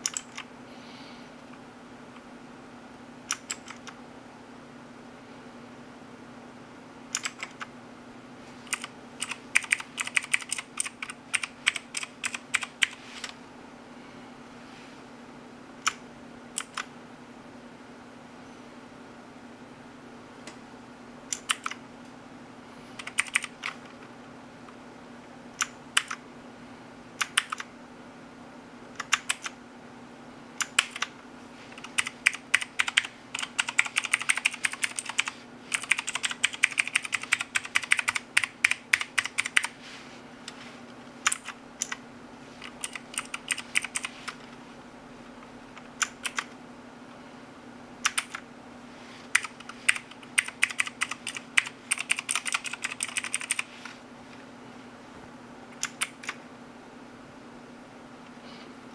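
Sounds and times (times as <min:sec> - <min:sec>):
mechanical keyboard keys clacking: 0:00.0 - 0:00.5, 0:03.3 - 0:04.0, 0:07.1 - 0:07.7, 0:08.7 - 0:13.4, 0:16.6 - 0:16.9, 0:21.3 - 0:21.8, 0:23.0 - 0:23.9, 0:25.6 - 0:26.2, 0:27.2 - 0:27.7, 0:29.0 - 0:29.6, 0:30.6 - 0:31.1, 0:31.8 - 0:39.7, 0:41.2 - 0:42.0, 0:42.6 - 0:44.1, 0:45.7 - 0:46.5, 0:48.0 - 0:48.4, 0:49.3 - 0:53.7, 0:55.8 - 0:56.4.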